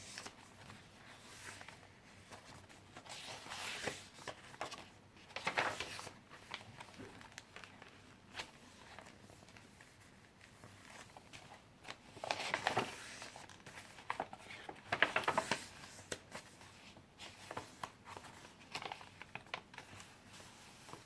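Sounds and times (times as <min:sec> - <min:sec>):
paper pages rustling: 0:00.0 - 0:21.0.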